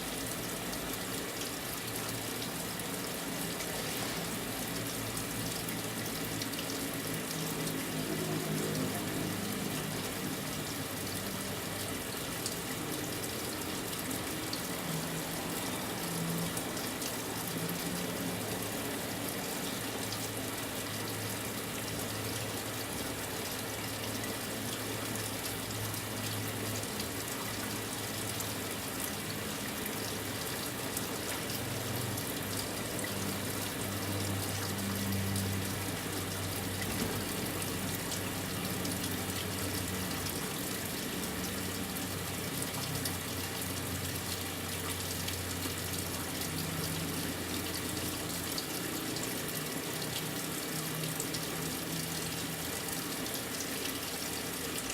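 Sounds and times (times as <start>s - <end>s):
water rushing into washing machine: 0.0s - 7.2s, 34.2s - 49.5s.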